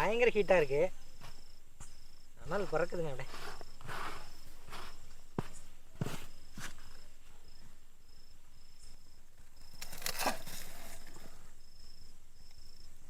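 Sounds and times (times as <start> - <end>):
high insect chirp: 0.0 - 13.0
rustling scrape of earth: 2.5 - 7.1, 9.6 - 11.5.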